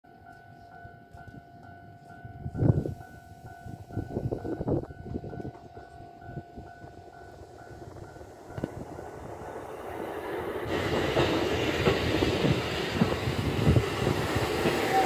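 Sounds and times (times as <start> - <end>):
train clunk: 0.3 - 15.0
train knocks and rumbles: 3.8 - 15.0.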